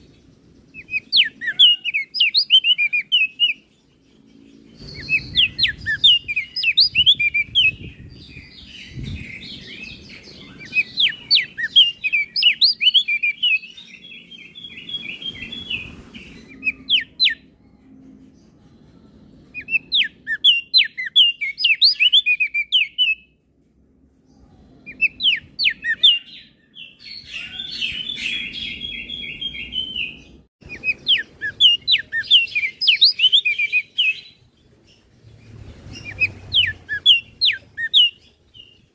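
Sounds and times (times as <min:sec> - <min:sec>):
bird singing sharp notes and trills: 0:00.0 - 0:23.4, 0:24.1 - 0:38.9.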